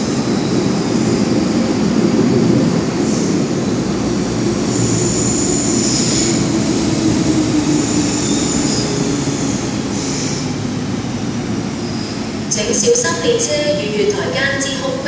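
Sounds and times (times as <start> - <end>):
metro train wheels rumbling: 0.0 - 15.0
high-pitched brake squeal: 4.8 - 6.4, 7.9 - 10.4, 11.8 - 12.3.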